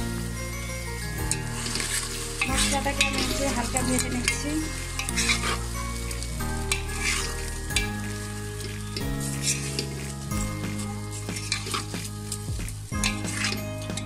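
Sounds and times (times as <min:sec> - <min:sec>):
masala sizzling in hot oil: 0:00.0 - 0:14.0
spoon scraping a pot: 0:06.7 - 0:08.0.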